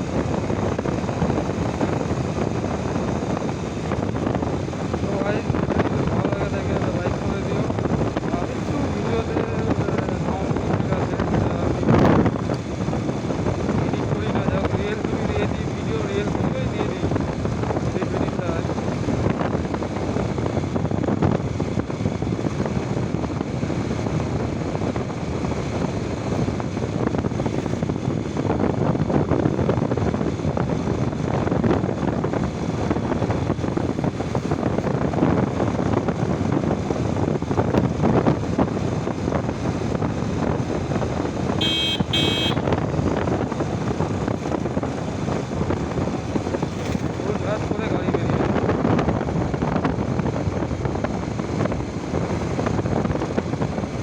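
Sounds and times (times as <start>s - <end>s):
motorcycle and road noise: 0.0s - 54.0s
wind buffeting microphone: 0.0s - 54.0s
short high beeps: 41.6s - 42.6s.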